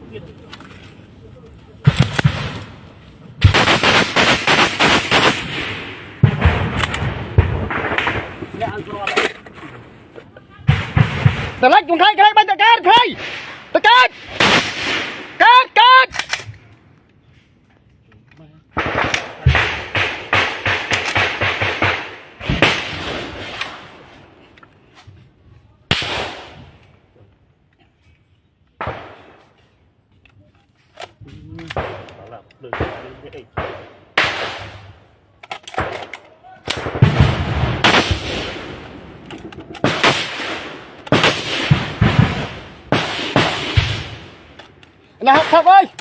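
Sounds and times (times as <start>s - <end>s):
heavy echoing gun bangs: 1.8s - 8.7s, 18.8s - 23.9s, 36.7s - 44.6s
rapid gunshots: 3.4s - 8.4s, 18.8s - 23.6s, 39.8s - 44.5s
gunshots with echo: 3.4s - 8.7s.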